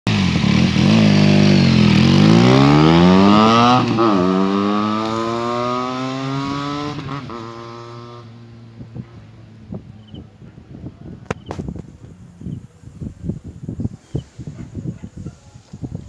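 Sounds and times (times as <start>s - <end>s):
motorcycle accelerating past: 0.1s - 9.2s.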